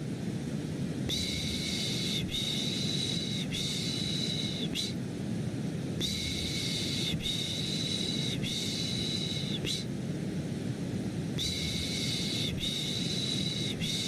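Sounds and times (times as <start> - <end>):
deep white noise rush: 0.0 - 14.0
person shushing: 1.1 - 5.0, 6.0 - 9.9, 11.4 - 14.0.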